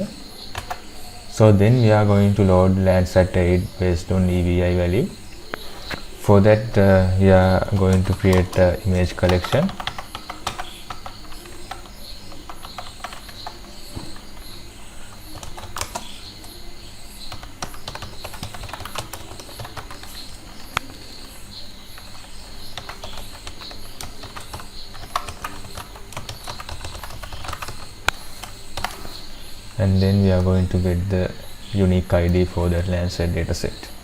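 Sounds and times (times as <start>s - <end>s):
computer keyboard typing: 0.0s - 0.8s, 6.9s - 16.6s, 17.2s - 21.1s, 21.9s - 29.2s
faint steady hiss: 0.0s - 34.0s.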